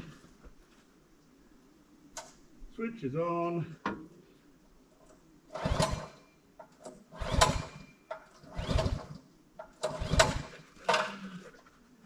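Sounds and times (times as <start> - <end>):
small engine turning over: 5.5 - 6.2, 7.1 - 7.8, 8.4 - 11.3
recoil starter pulls: 5.5 - 11.4.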